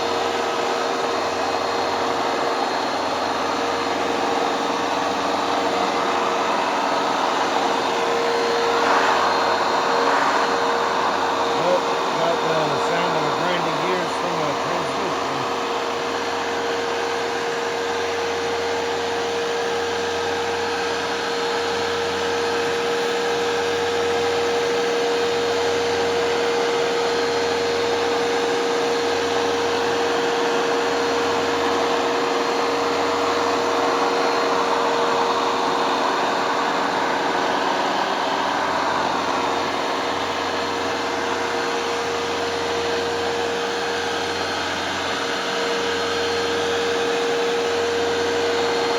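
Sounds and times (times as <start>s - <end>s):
carpet cleaner motor hum: 0.0s - 48.9s
rush of suction air: 7.5s - 12.9s.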